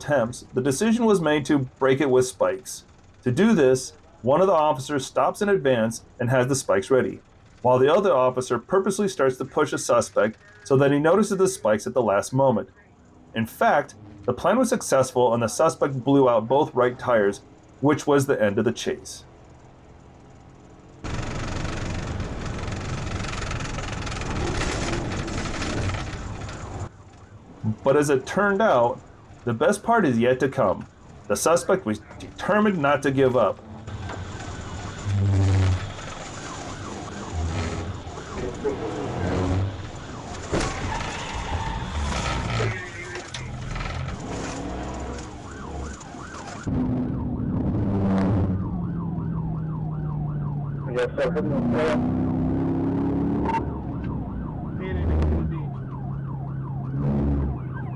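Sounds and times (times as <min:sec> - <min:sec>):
vehicle engine running: 0:00.0 - 0:11.0, 0:15.8 - 0:57.9
road noise: 0:00.0 - 0:57.9
police siren yelping: 0:21.1 - 0:57.9.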